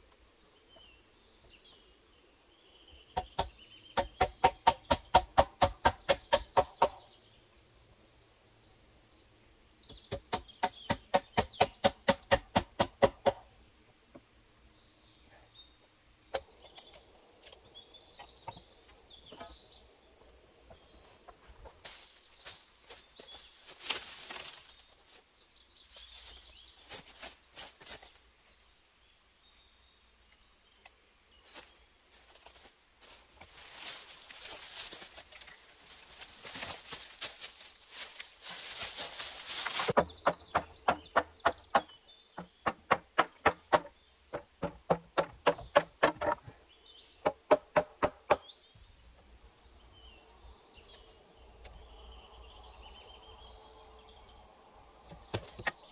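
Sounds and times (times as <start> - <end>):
hand tool knocking: 3.2 - 7.0, 10.1 - 13.4
rustling and scraping: 20.6 - 28.6, 31.4 - 40.2.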